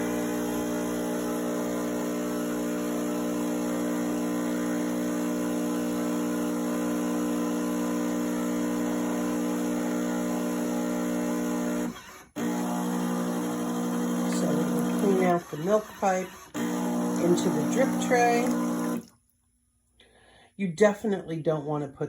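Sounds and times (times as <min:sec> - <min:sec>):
coffee machine pump humming: 0:00.0 - 0:19.1.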